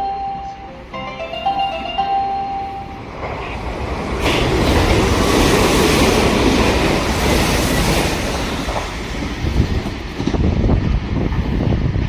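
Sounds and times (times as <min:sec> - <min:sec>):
train wheel and rail noise: 0:00.0 - 0:12.0.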